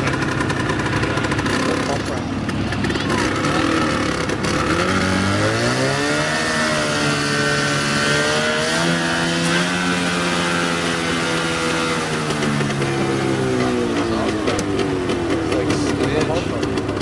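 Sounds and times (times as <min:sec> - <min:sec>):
small engine revving high: 0:01.2 - 0:02.2, 0:02.8 - 0:14.7.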